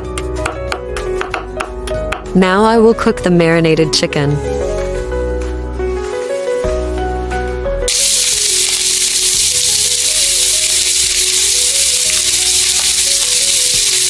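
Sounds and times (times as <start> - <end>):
background music: 0.0 - 8.2
chicken sizzling in a pan: 7.9 - 14.0.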